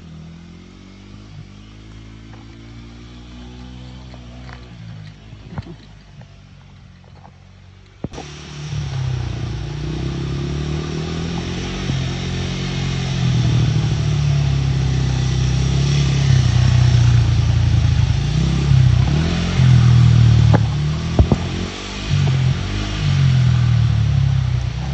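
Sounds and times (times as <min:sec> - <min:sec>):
dirt bike engine revving: 0:08.0 - 0:24.9.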